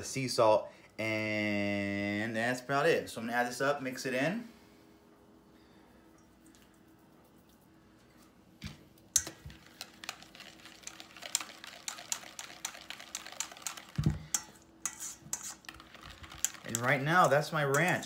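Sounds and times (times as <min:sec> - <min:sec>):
whisk clicking in metal bowl: 0:09.2 - 0:18.0.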